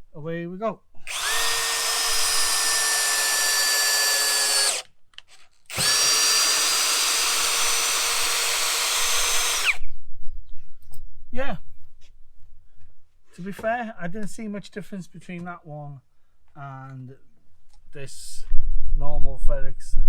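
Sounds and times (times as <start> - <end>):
cordless drill motor whining: 1.0 - 4.9, 5.7 - 9.9.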